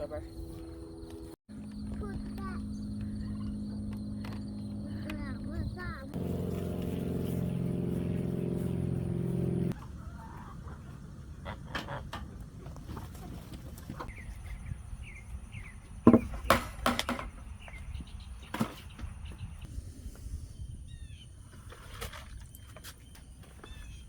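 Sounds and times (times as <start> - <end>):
low steady rumble: 1.5 - 12.6.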